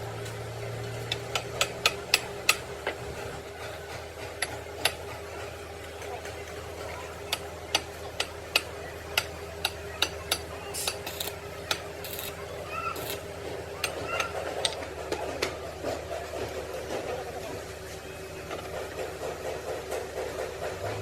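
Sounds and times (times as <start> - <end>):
workshop machine hum: 0.0 - 21.0
hand tool striking metal: 1.0 - 3.0, 7.3 - 13.2.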